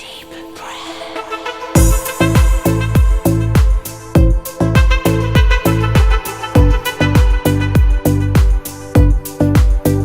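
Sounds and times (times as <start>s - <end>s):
electronic music: 0.0s - 10.0s
deep bass drum hits: 1.8s - 9.8s.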